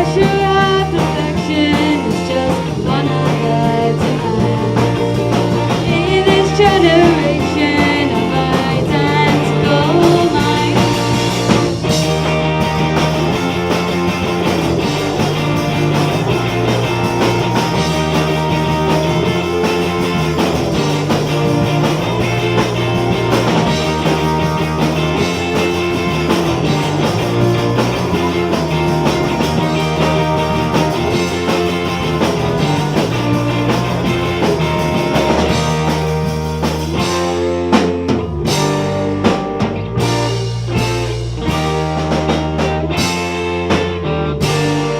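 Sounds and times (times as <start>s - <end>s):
woman singing: 0.0s - 5.1s, 5.7s - 11.6s
live rock band playing: 0.0s - 44.9s.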